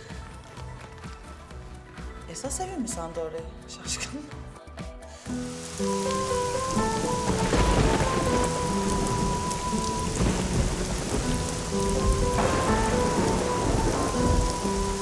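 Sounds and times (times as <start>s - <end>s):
soft background music: 0.0s - 15.0s
heavy rain falling: 5.3s - 15.0s
thunder rumbling: 5.5s - 15.0s.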